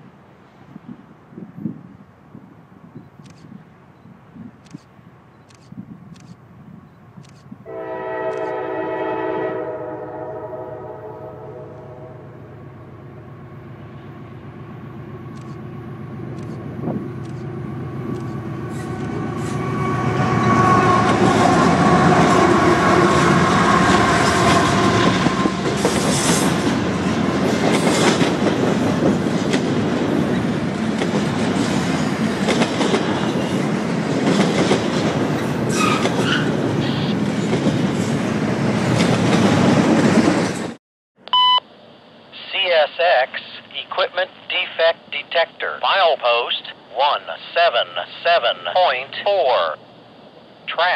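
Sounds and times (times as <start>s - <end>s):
locomotive air horn: 7.6s - 12.5s, 19.2s - 25.7s
freight train rumbling past: 7.6s - 40.8s.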